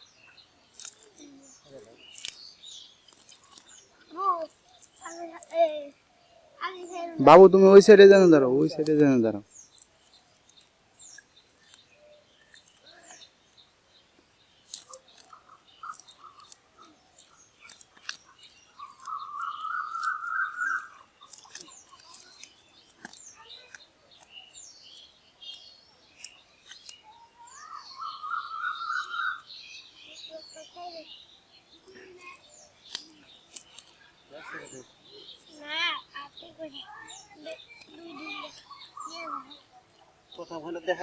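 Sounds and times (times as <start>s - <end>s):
birds chirping: 0.0s - 41.0s
rising bird trill: 18.7s - 22.4s, 27.0s - 31.1s.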